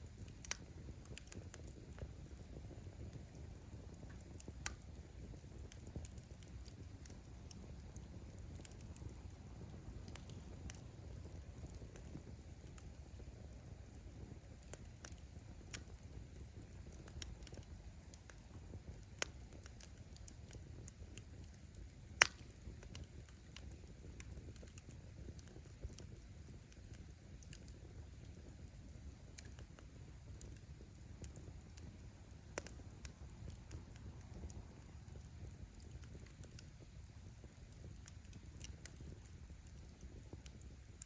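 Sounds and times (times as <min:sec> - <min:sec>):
firewood crackling: 0:00.0 - 0:41.0
rumble of bonfire flames: 0:00.0 - 0:41.0.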